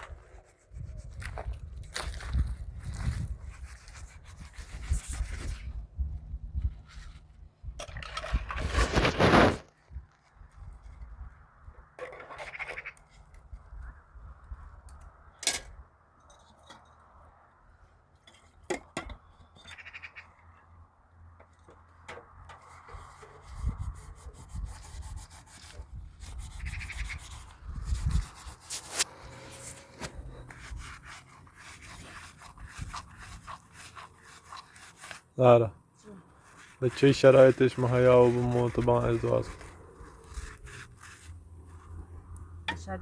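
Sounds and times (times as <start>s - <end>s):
cloth scrubbing a surface: 3.3s - 5.8s, 22.9s - 42.0s.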